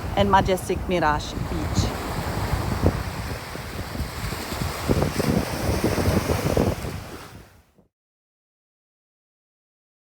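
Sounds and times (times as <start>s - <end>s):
surf washing on beach: 0.0s - 7.8s
wind buffeting microphone: 0.0s - 7.9s.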